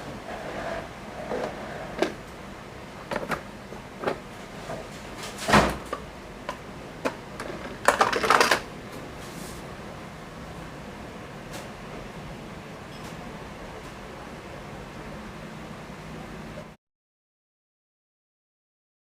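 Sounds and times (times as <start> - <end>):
plastic clattering rattle: 7.4 - 8.7.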